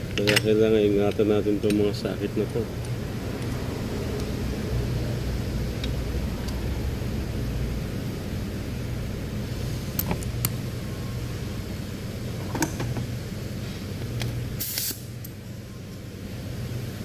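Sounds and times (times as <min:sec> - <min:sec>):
metallic clicks of engine parts: 0:00.0 - 0:01.9
low background hum: 0:00.0 - 0:17.0
short hiss: 0:14.6 - 0:15.1.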